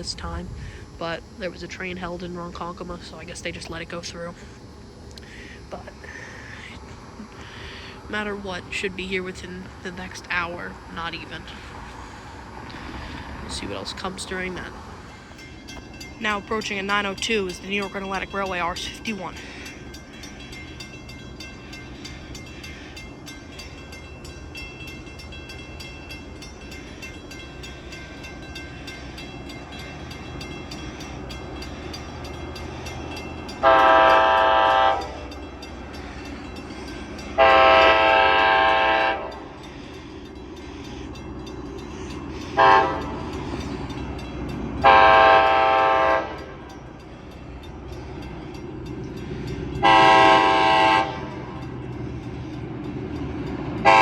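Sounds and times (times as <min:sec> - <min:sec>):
locomotive rumble: 0:00.0 - 0:54.0
locomotive air horn blasts: 0:33.6 - 0:35.4, 0:37.3 - 0:39.6, 0:42.5 - 0:43.4, 0:44.8 - 0:46.7, 0:49.8 - 0:51.6.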